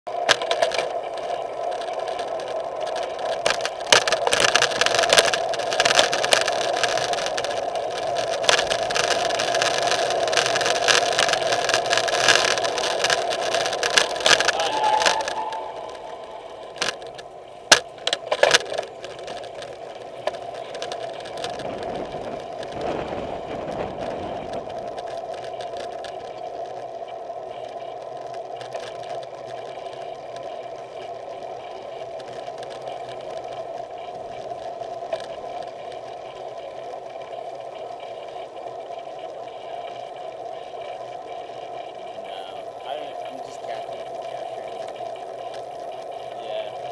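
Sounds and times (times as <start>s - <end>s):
bicycle mechanical buzz: 0.1s - 46.9s
sharp clicks: 0.2s - 23.1s
rushing noise: 5.7s - 17.4s.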